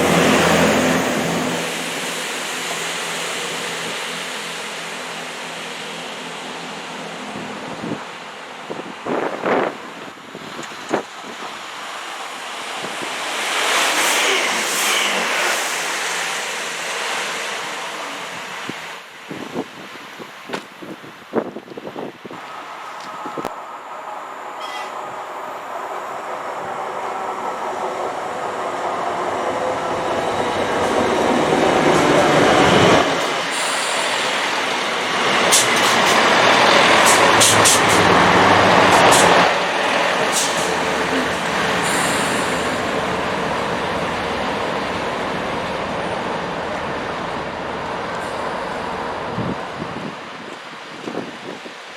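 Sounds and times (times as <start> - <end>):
train passing at speed: 0.0 - 20.3, 21.3 - 51.9
high hisses or squeals: 33.4 - 34.7, 41.8 - 43.0.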